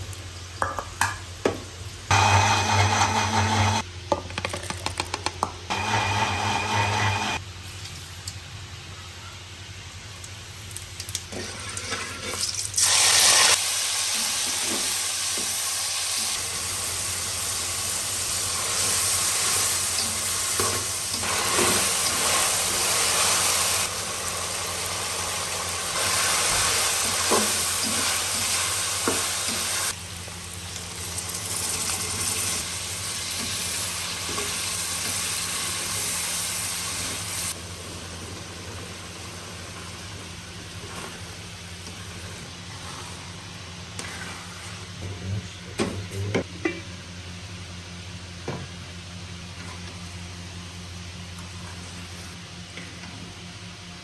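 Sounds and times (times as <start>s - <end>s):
food sizzling in hot oil: 9.8s - 44.7s.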